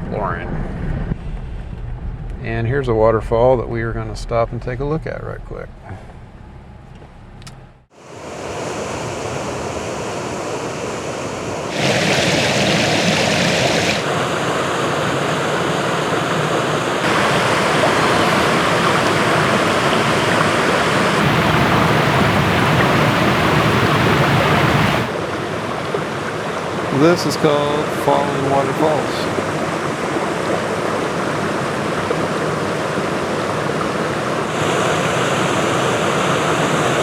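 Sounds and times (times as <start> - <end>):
waterfall rushing: 11.7 - 37.0.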